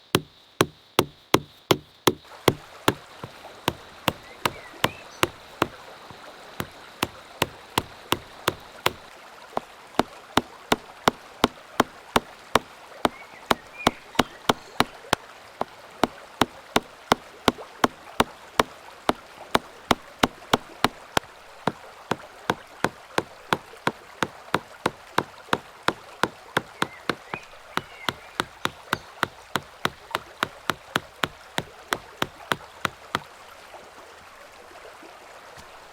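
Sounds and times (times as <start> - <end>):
mallet striking chisel into wood: 0.0 - 9.1, 10.0 - 15.0, 16.4 - 21.3, 22.1 - 33.2.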